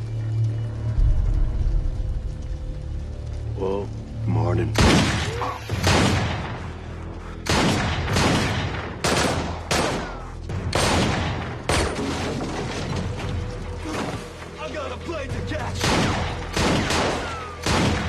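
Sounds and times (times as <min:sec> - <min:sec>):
low rumble: 0:00.0 - 0:09.0
loud sharp echoing bangs: 0:07.4 - 0:12.3, 0:15.8 - 0:18.0.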